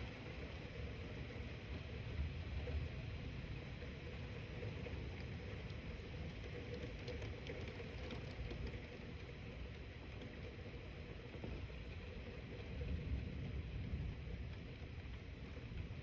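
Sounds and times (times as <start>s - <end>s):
thunderstorm rumble and hiss: 0.0s - 16.0s
faint ticks: 4.6s - 13.1s.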